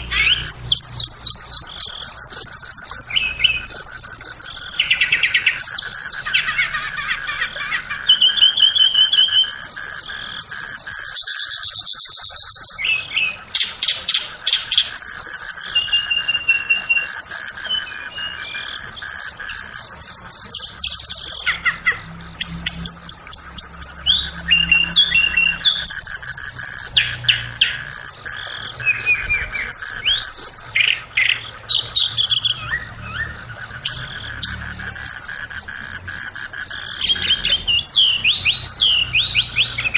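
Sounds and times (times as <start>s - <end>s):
bird chirping and trilling: 0.0s - 39.9s.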